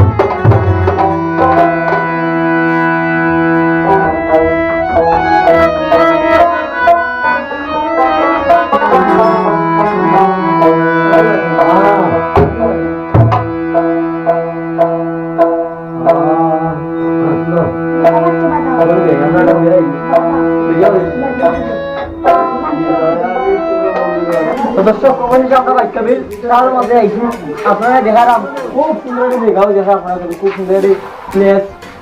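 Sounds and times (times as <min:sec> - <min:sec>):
sliding melody line: 0:00.0 - 0:32.0
steady held drone: 0:01.0 - 0:28.9
tabla strokes: 0:30.1 - 0:32.0.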